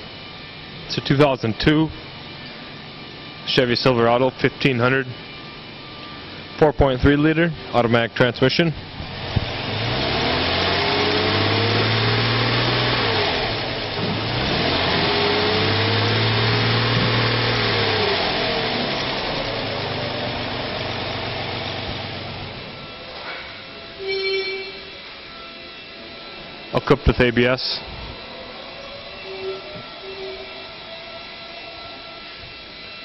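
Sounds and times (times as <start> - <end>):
truck engine revving: 8.9 - 23.0.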